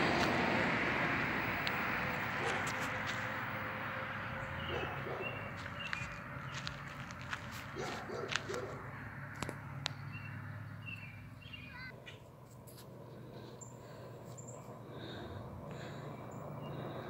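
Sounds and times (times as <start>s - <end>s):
birds chirping: 4.2s - 8.8s, 9.5s - 12.3s, 13.2s - 17.0s.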